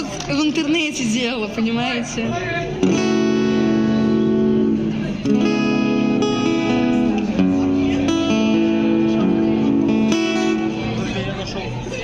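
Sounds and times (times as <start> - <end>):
acoustic guitar strumming chords: 2.7 - 11.8.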